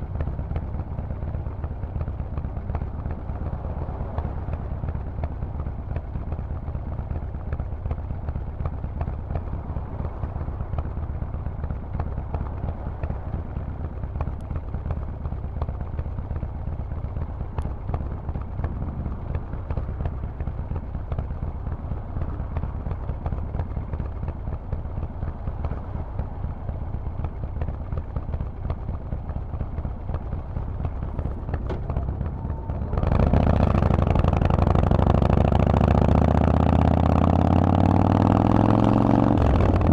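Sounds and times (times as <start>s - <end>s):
motorcycle engine idling: 0.0s - 39.9s
motorcycle engine revving: 14.6s - 39.9s.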